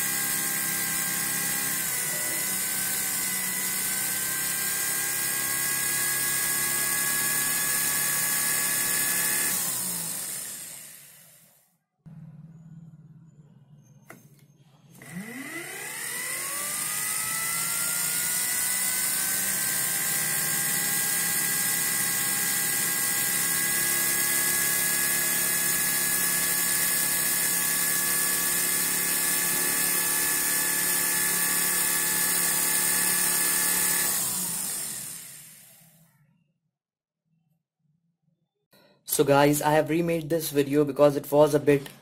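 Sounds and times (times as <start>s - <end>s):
electric motor whining: 0.0s - 11.6s, 14.8s - 36.0s.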